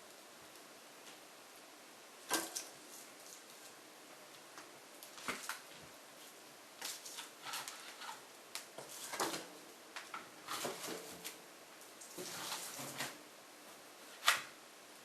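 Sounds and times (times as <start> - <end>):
logs crackling and popping: 6.8 - 8.9.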